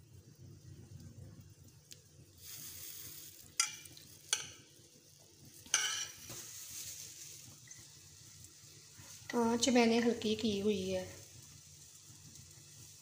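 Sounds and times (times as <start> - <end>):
bread sizzling in oil: 0.0 - 13.0
metal clattering against a pan: 3.6 - 4.6, 5.7 - 6.3.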